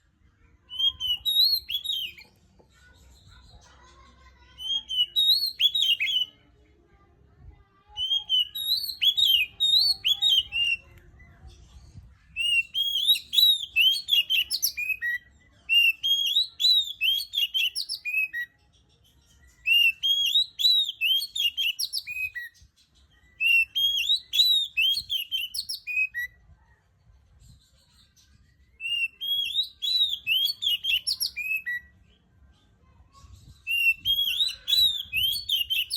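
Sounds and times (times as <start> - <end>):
bird singing whistled notes: 0.7 - 2.3, 4.7 - 6.3, 8.0 - 10.8, 12.4 - 18.5, 19.6 - 26.4, 28.8 - 31.9, 33.6 - 35.9.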